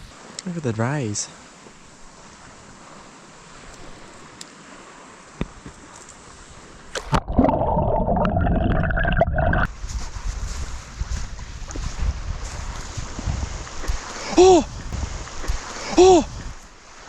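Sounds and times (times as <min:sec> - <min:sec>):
faint water ambience: 0:00.0 - 0:17.0
muffled water gurgling: 0:07.0 - 0:09.7.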